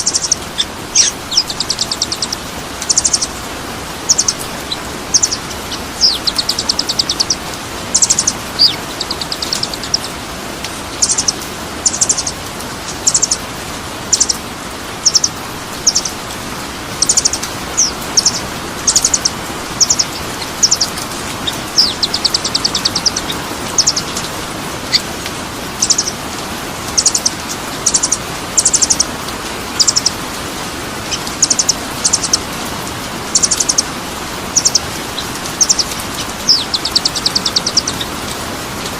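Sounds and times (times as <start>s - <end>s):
songbird trilling: 0.0s - 3.4s, 4.0s - 10.1s, 11.0s - 13.4s, 14.1s - 14.4s, 15.0s - 16.2s, 17.0s - 25.1s, 25.8s - 26.2s, 26.9s - 29.1s, 29.7s - 30.2s, 31.0s - 32.5s, 33.3s - 33.9s, 34.5s - 38.1s.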